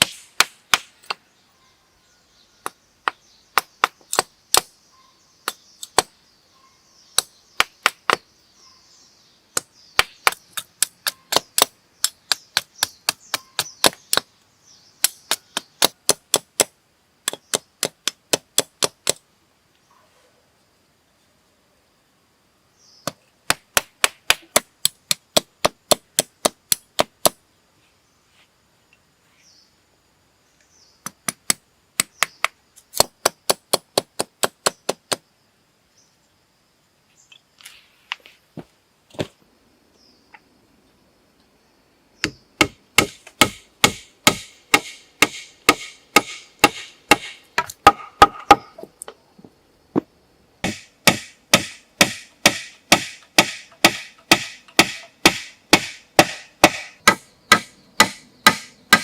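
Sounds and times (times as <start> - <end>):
wood being chopped: 0.0 - 1.2, 2.6 - 4.8, 5.4 - 6.1, 7.2 - 8.2, 9.6 - 14.3, 15.0 - 19.2, 23.0 - 27.4, 31.0 - 35.2, 42.2 - 48.9, 50.0 - 59.0.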